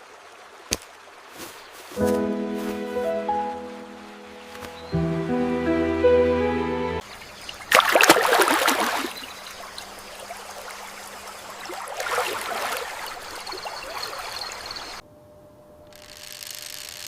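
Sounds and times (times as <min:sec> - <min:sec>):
running water splashing: 0:07.2 - 0:15.0.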